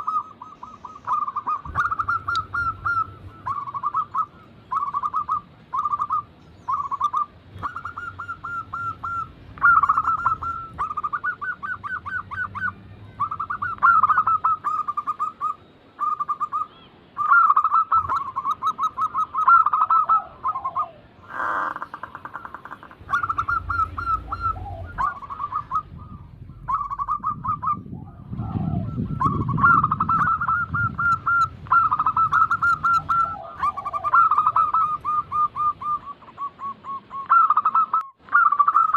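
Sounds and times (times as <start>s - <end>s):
doves cooing: 0.0s - 38.9s
low rumble: 22.8s - 33.3s.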